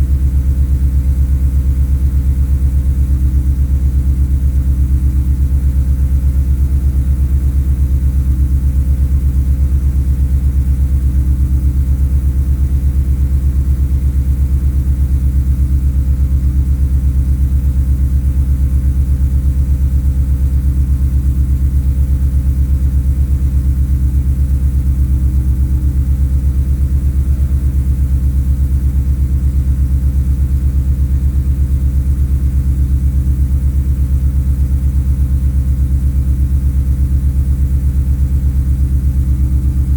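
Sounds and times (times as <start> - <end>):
car engine idling: 38.8 - 39.9.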